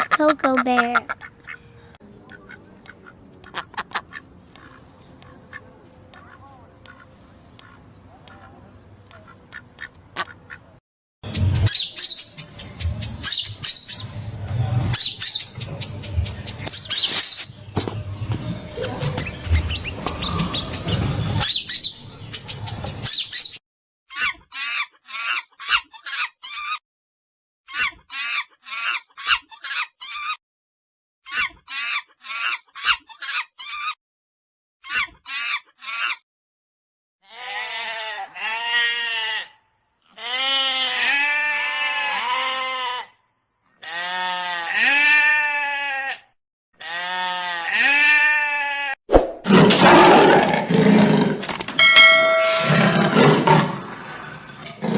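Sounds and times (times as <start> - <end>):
bird chirping: 11.3 - 23.6
sheep bleating: 37.2 - 43.2, 43.8 - 49.0.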